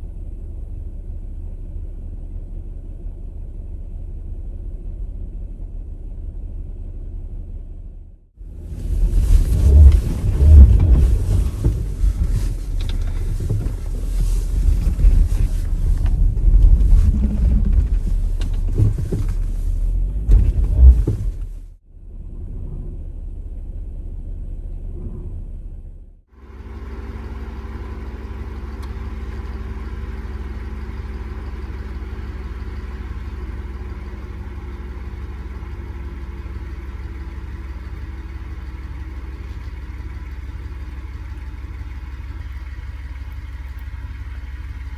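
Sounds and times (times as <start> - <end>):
loud uneven engine rumble: 8.4 - 21.7, 26.3 - 44.9
steady engine hum: 8.4 - 21.7, 26.3 - 44.9.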